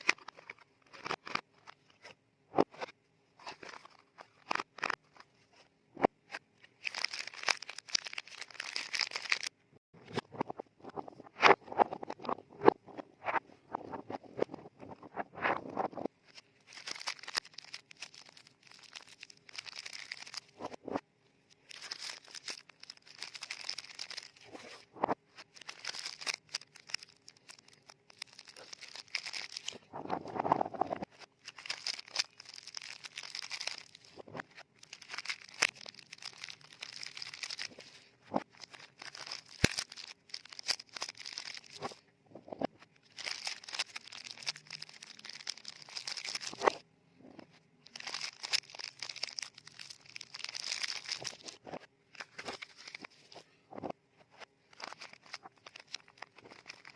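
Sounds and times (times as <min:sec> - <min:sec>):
paper wrappers crinkling: 0:06.8 - 0:09.5, 0:16.3 - 0:20.6, 0:21.6 - 0:29.9, 0:31.3 - 0:42.0, 0:43.0 - 0:46.8, 0:47.9 - 0:53.4, 0:54.7 - 0:56.9.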